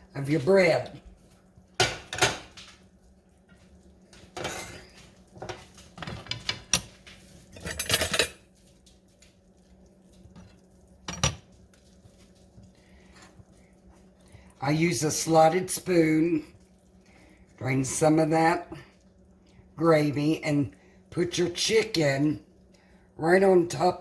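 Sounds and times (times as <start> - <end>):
metal spoon scraping a pot: 7.5 - 8.4.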